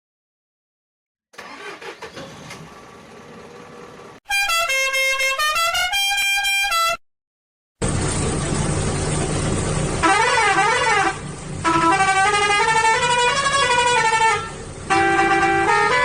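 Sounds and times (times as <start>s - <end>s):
vehicle engine rumbling: 1.8s - 4.2s, 7.8s - 16.0s
musical vehicle horn: 4.2s - 7.0s, 10.0s - 16.0s.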